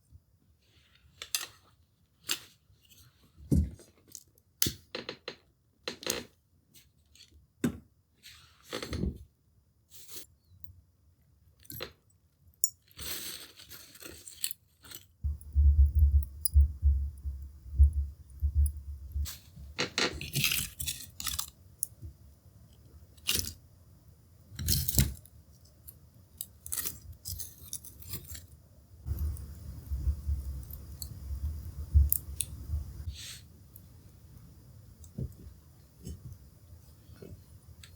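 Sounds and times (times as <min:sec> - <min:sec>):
low rumble: 0:15.2 - 0:19.3, 0:29.1 - 0:33.1.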